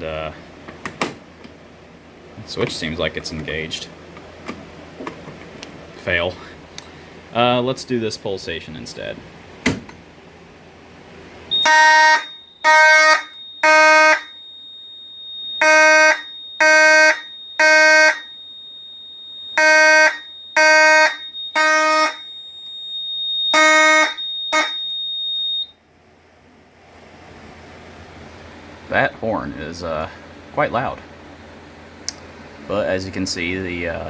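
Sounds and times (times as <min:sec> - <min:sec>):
fire alarm horn blasts: 0:11.5 - 0:25.8.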